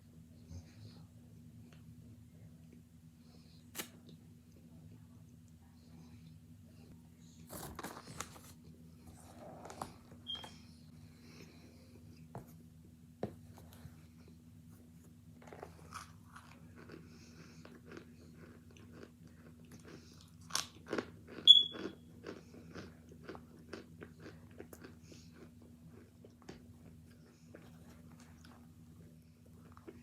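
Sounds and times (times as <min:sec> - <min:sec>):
faint low hum: 0:00.0 - 0:30.0
crunchy chewing: 0:15.4 - 0:30.0.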